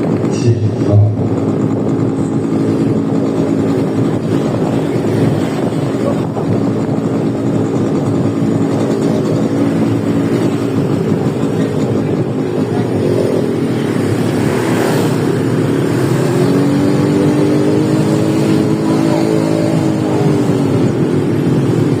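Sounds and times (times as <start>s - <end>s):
motorcycle engine running: 0.0s - 22.0s
wind on microphone: 0.0s - 22.0s.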